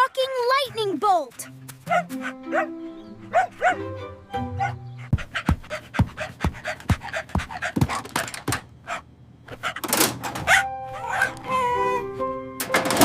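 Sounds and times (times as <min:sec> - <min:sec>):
cartoon dog panting and yipping: 0:00.0 - 0:03.9, 0:04.6 - 0:09.8
background music: 0:00.3 - 0:05.2, 0:10.3 - 0:13.0.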